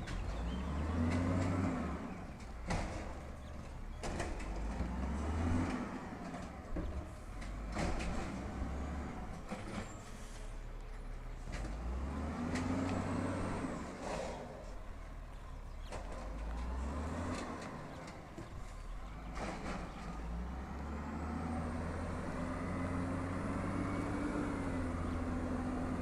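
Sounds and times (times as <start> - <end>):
garbage truck engine revving: 0.0 - 10.6, 11.4 - 26.0
sharp knocks and clunks: 2.4 - 8.6.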